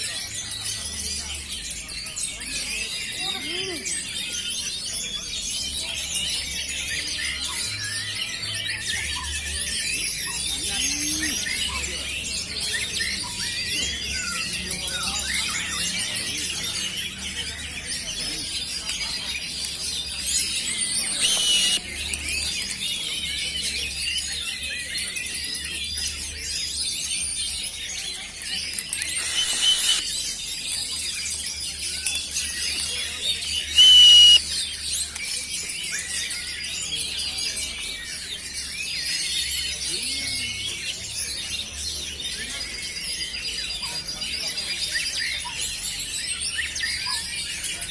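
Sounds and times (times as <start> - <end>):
chorus of birds singing: 0.0 - 47.9
loud steady high tone: 21.2 - 21.8, 29.2 - 30.0, 33.8 - 34.4.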